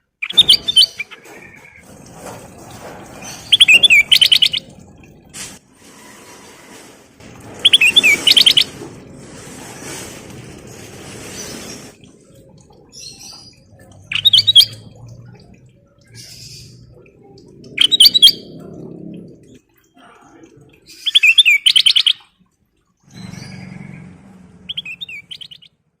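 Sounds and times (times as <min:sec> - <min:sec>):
bulbul chirping: 0:03.5 - 0:04.7, 0:24.7 - 0:25.7.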